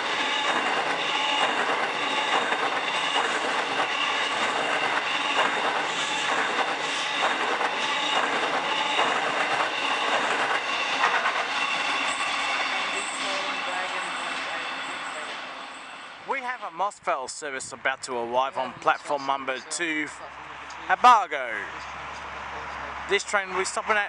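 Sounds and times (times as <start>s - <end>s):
train wheels clattering over rail joints: 0.0s - 15.5s
high wheel squeal: 0.0s - 16.4s.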